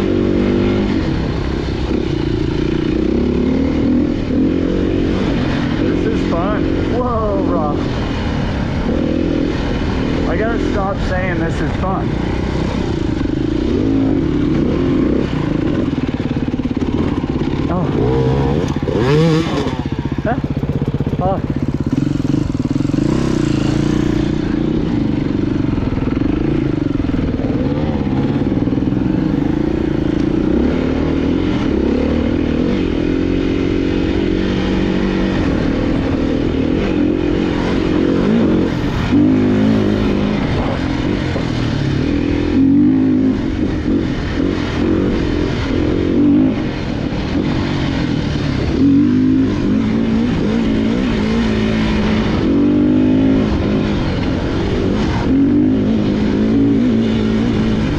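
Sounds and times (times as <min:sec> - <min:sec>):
motorcycle engine revving: 0:00.0 - 0:57.9
motorcycle throttle blips: 0:09.4 - 0:30.5.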